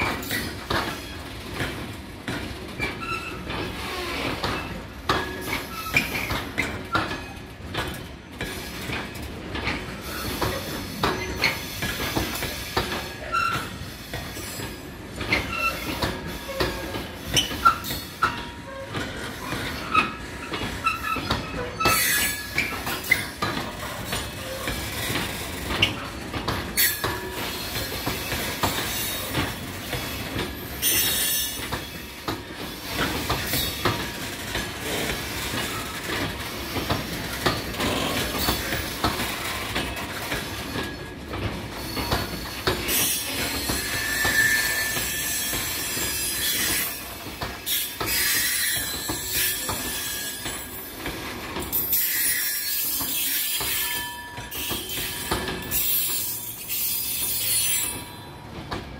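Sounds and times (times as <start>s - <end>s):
high-pitched wheel squeal: 43.0s - 46.9s.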